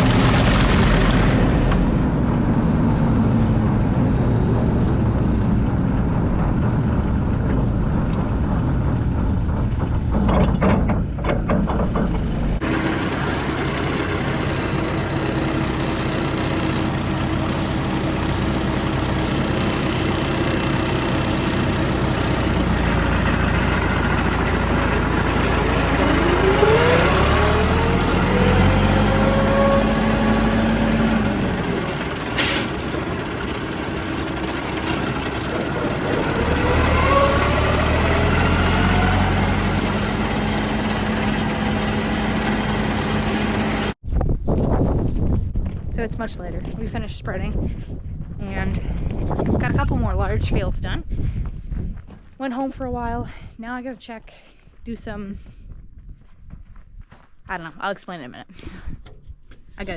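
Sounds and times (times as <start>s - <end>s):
tractor engine running: 0.0s - 44.0s.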